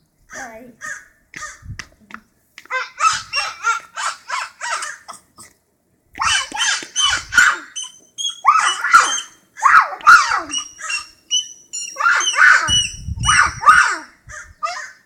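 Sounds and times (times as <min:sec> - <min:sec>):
harsh falling bird calls: 0:00.3 - 0:01.8, 0:02.7 - 0:05.5, 0:06.2 - 0:15.0
high whistled bird notes: 0:06.2 - 0:09.5, 0:10.1 - 0:13.9.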